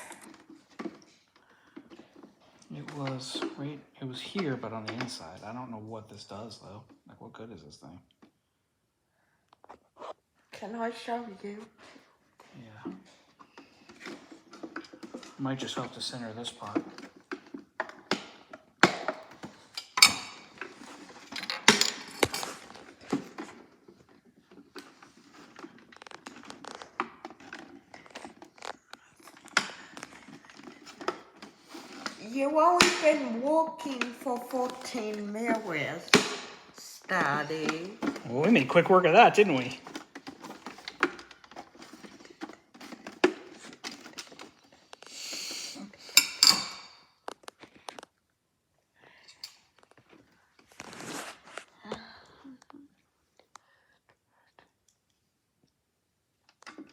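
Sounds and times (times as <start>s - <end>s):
scraping rustle: 50.1s - 51.7s.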